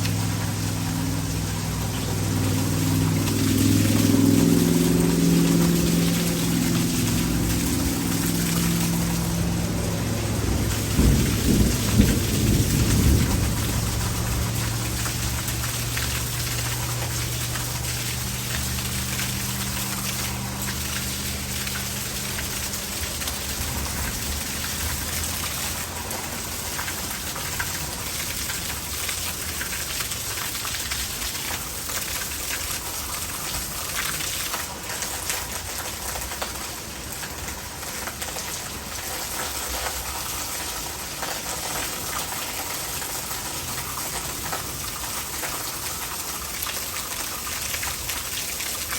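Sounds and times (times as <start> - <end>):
heavy rain falling: 0.0 - 48.9
rainwater gushing into gutter: 0.0 - 48.9
thunder rumbling: 1.0 - 17.3.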